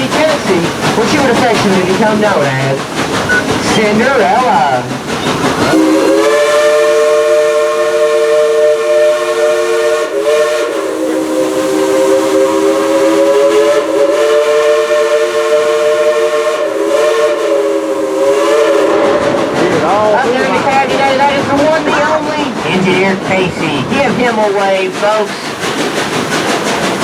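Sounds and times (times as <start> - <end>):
steam locomotive chime whistle: 5.2 - 19.2.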